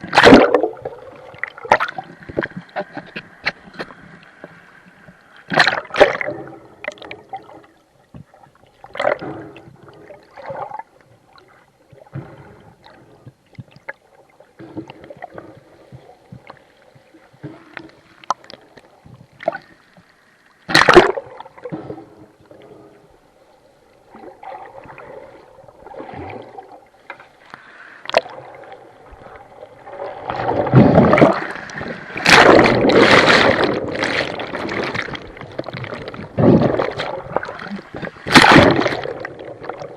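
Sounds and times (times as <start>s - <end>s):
sharp water splashes: 0.0s - 0.8s, 5.5s - 6.3s, 20.7s - 21.8s, 29.8s - 39.9s
rough sea water sloshing: 0.0s - 39.9s.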